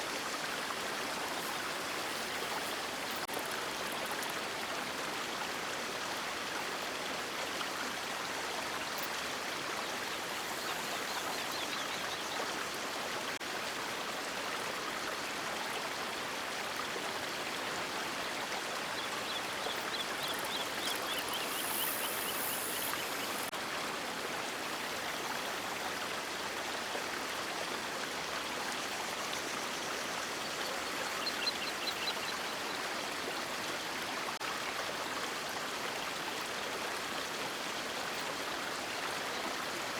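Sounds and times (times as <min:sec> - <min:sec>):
river water rushing: 0:00.0 - 0:03.8.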